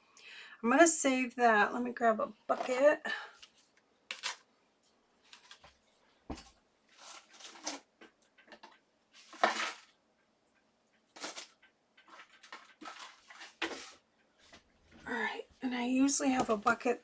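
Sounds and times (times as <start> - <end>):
plastic buckets scraping and clattering: 2.5 - 4.5, 5.2 - 10.0, 11.2 - 15.2, 16.1 - 17.0.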